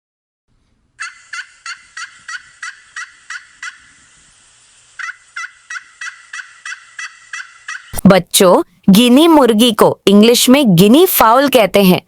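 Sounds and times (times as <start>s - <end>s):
turkey calls: 1.0s - 8.0s.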